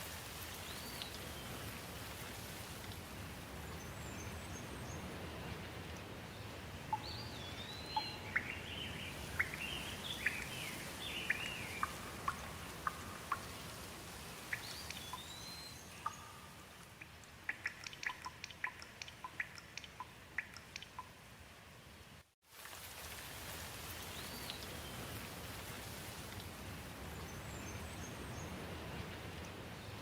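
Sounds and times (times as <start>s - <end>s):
steady rain: 0.0s - 30.0s
water drops falling: 9.4s - 13.8s, 14.5s - 21.2s.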